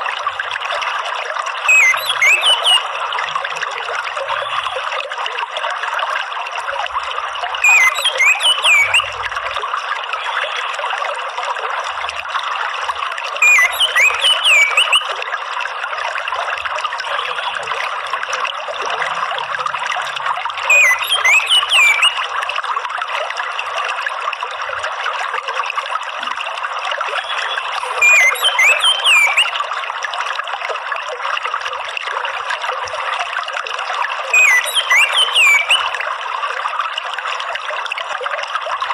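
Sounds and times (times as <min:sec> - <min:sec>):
trickling water: 0:00.0 - 0:38.9
bird song whistles: 0:01.7 - 0:02.9, 0:07.6 - 0:09.2, 0:13.4 - 0:15.1, 0:20.7 - 0:22.3, 0:27.2 - 0:29.6, 0:34.3 - 0:36.0.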